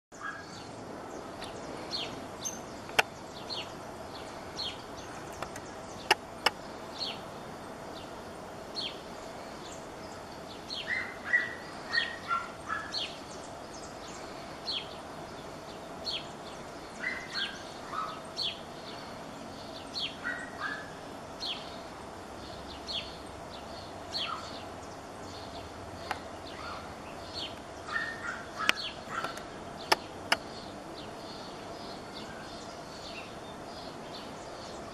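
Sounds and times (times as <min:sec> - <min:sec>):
birds chirping: 0:00.1 - 0:34.9
faint steady hum: 0:00.2 - 0:34.9
sharp clicks: 0:05.2 - 0:06.6.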